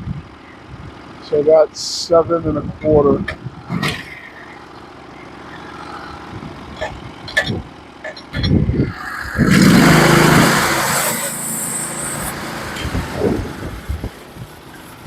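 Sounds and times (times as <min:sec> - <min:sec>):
sawmill engine idling: 0:00.2 - 0:15.0
hiss: 0:08.9 - 0:12.9.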